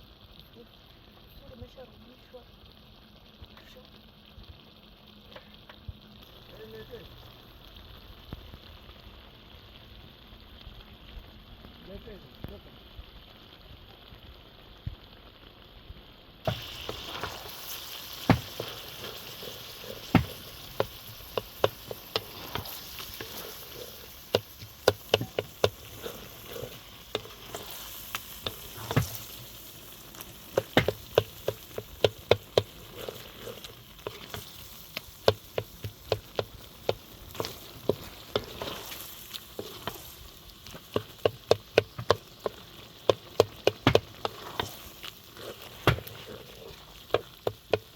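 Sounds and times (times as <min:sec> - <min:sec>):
food sizzling in oil: 0:00.0 - 0:47.9
spoon knocking against pan: 0:24.3 - 0:26.0, 0:30.6 - 0:32.7.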